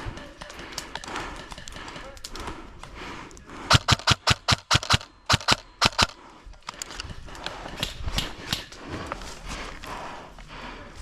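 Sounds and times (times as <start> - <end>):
rustling and footsteps: 6.3 - 11.0.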